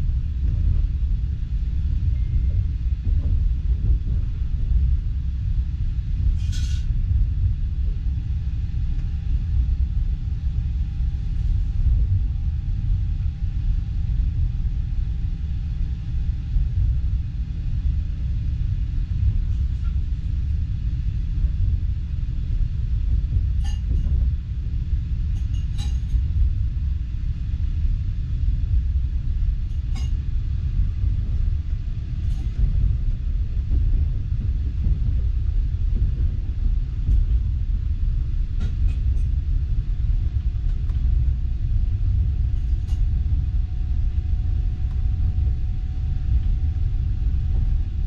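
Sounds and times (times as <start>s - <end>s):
train wheels rumbling on rails: 0.0s - 7.5s, 19.2s - 27.8s, 29.3s - 48.0s.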